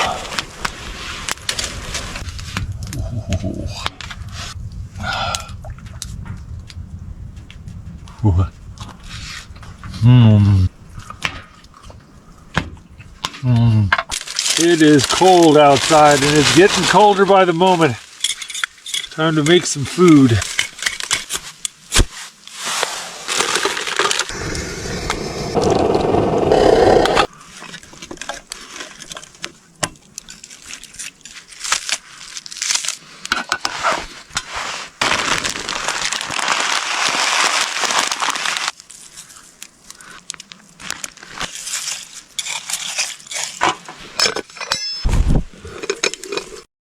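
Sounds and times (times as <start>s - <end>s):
steady hissing: 24.3s - 27.4s.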